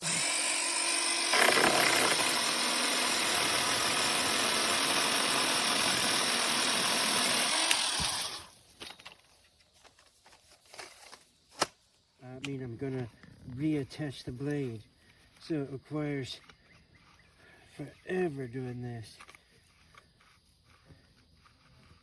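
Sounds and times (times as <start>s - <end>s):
electric pole saw whining: 0.0s - 8.6s.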